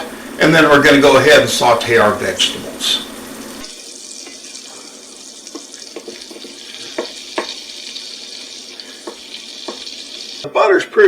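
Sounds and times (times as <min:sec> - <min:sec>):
butter sizzling in a pan: 0:00.0 - 0:10.5.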